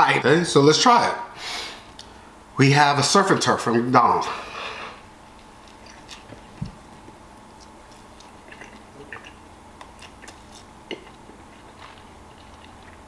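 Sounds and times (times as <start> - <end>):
person chewing a burger: 5.3 - 13.0
wet mouth clicks: 8.2 - 11.2.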